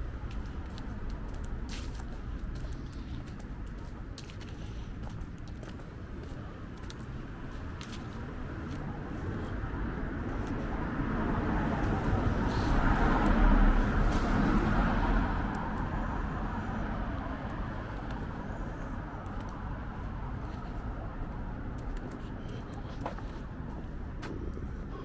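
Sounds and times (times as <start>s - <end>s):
vehicle driving past: 10.8s - 17.9s.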